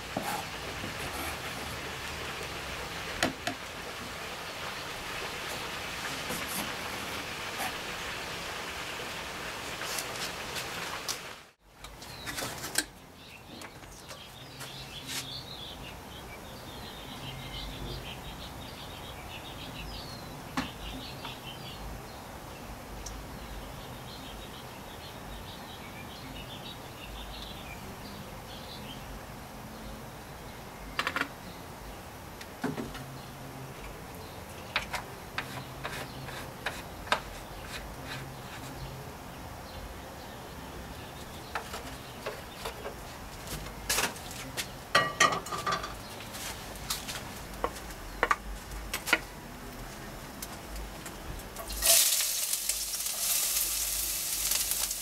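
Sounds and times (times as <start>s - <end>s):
background noise: 0.0s - 55.0s
small birds chirping: 11.9s - 32.1s, 33.0s - 45.1s.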